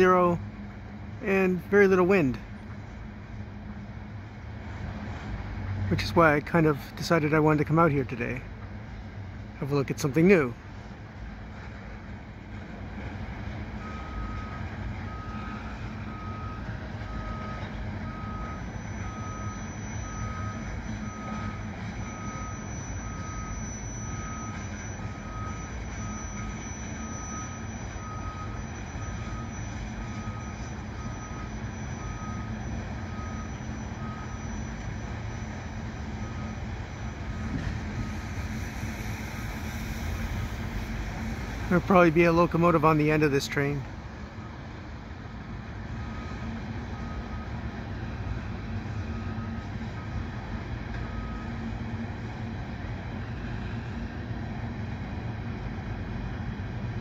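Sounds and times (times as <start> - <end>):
reversing alarm beeps: 13.7 - 44.8, 45.9 - 54.2.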